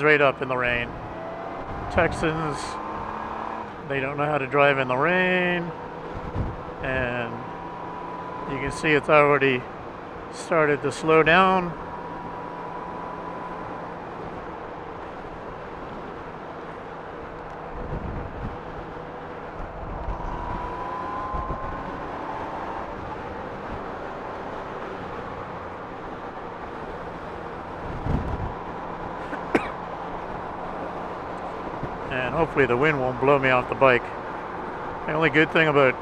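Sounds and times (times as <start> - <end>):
wind and road noise: 0.0 - 36.0
motorcycle engine: 0.5 - 36.0
wind buffeting microphone: 5.8 - 6.8, 17.6 - 24.0, 26.7 - 29.3.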